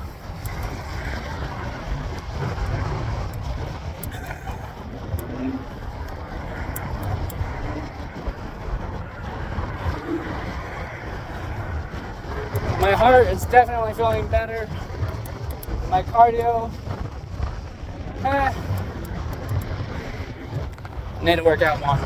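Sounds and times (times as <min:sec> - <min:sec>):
wind and road noise: 0:00.0 - 0:22.0
light clicks: 0:00.3 - 0:01.5, 0:06.0 - 0:07.9, 0:12.5 - 0:16.6, 0:18.4 - 0:19.8.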